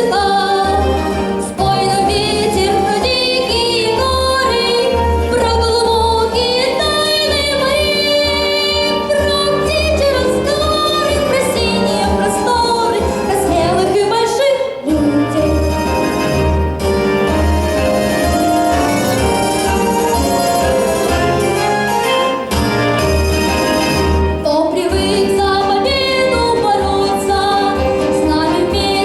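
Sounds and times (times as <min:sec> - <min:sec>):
boy singing with vibrato: 0:00.0 - 0:16.0, 0:24.4 - 0:29.0
instrumental backing with bass beat: 0:14.9 - 0:29.0.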